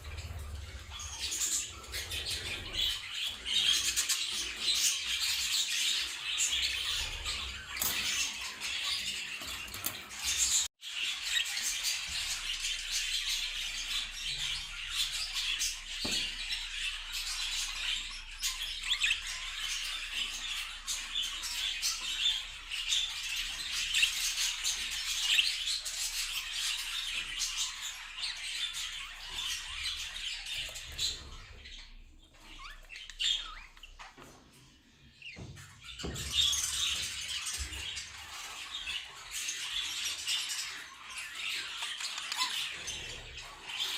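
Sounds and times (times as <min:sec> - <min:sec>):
budgerigars chirping and chattering: 0:00.0 - 0:43.9.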